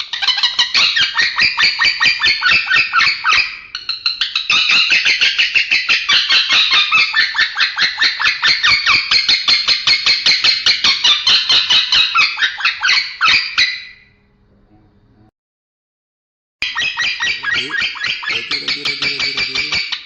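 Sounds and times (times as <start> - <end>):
lovebird chattering: 16.6 - 20.0.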